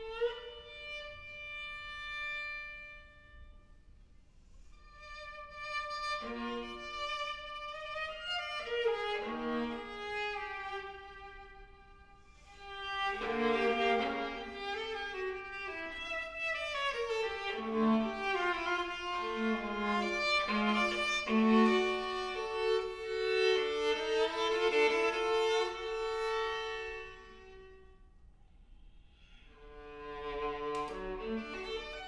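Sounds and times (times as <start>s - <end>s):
viola bowed notes: 12.6s - 27.8s.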